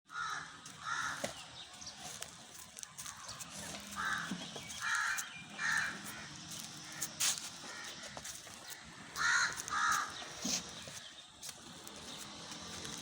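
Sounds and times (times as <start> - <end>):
crow cawing: 0.1 - 1.3, 3.9 - 10.3.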